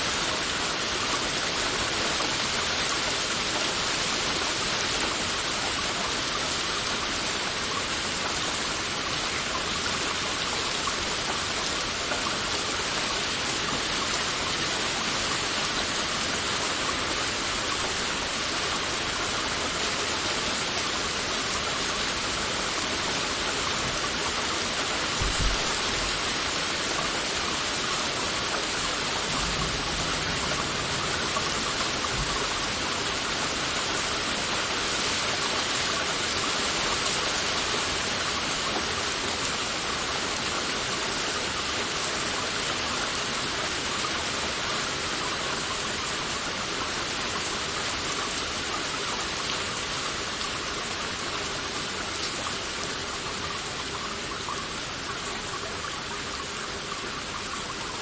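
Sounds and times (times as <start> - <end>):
heavy rain falling: 0.0 - 58.0
low thump: 25.2 - 26.1.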